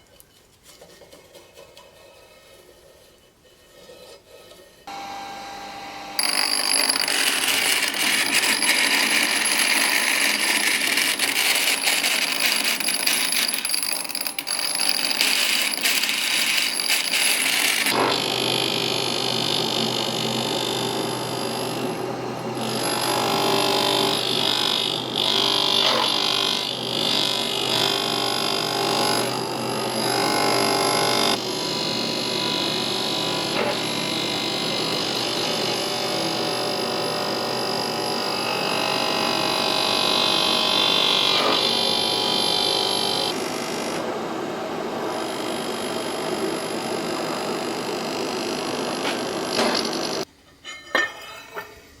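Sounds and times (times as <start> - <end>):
power grinder grinding steel: 4.9 - 43.4.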